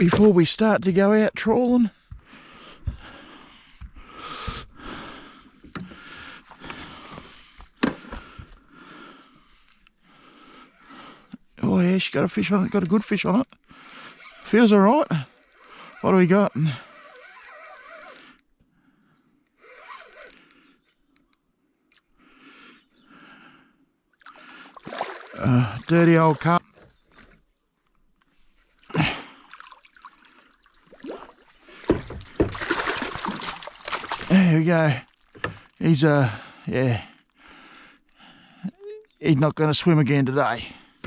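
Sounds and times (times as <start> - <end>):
fishing gear rustling and scraping: 9.4 - 18.6, 19.6 - 21.4, 24.7 - 29.4.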